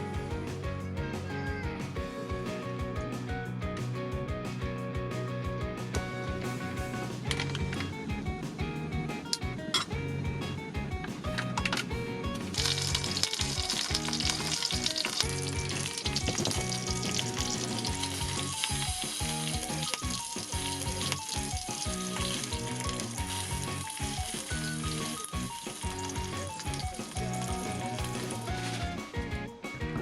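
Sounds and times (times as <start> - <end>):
plucked melody music: 0.0 - 30.0.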